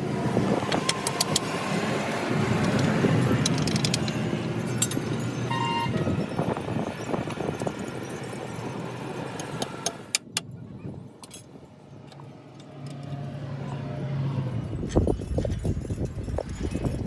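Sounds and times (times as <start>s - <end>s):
sharp metal clinks: 2.8s - 9.6s
motor vehicle passing: 12.1s - 17.0s.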